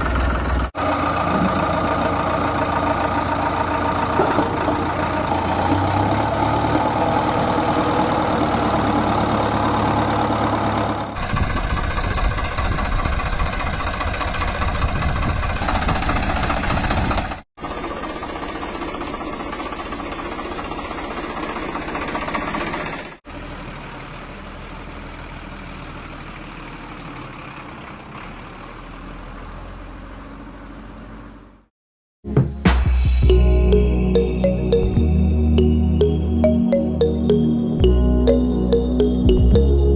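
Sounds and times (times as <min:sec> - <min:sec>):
mini tractor engine idling: 0:00.0 - 0:29.3.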